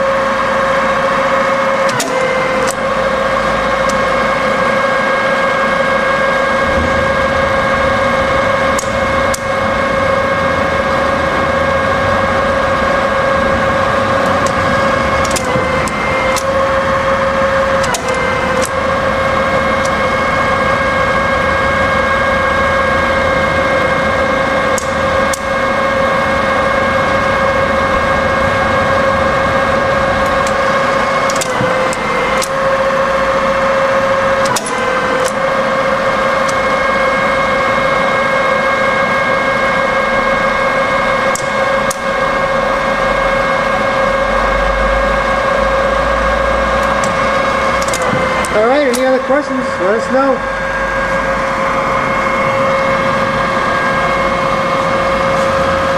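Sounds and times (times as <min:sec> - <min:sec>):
milling machine motor whine: 0:00.0 - 0:55.9
sharp machine clicks: 0:01.8 - 0:03.0, 0:07.8 - 0:09.8, 0:14.1 - 0:19.0, 0:24.7 - 0:25.6, 0:30.2 - 0:32.8, 0:33.8 - 0:35.6, 0:41.1 - 0:42.3, 0:46.8 - 0:49.6.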